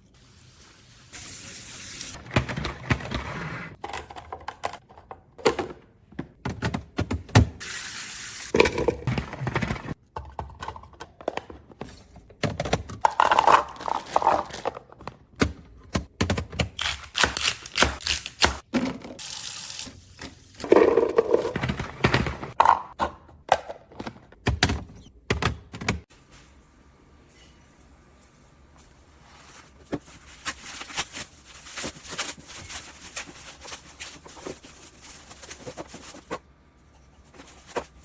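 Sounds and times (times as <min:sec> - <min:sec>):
plastic bins knocking and clicking: 0:03.8 - 0:07.6, 0:08.6 - 0:16.8, 0:20.7 - 0:26.0.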